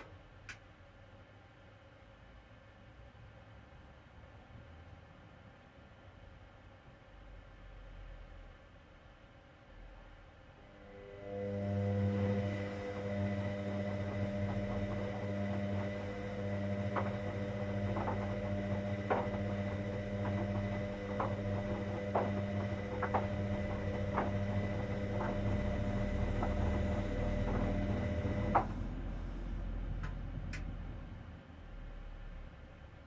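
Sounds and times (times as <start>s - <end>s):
washing machine electrical hum: 0.0s - 33.0s
washing machine clicks: 12.1s - 31.0s.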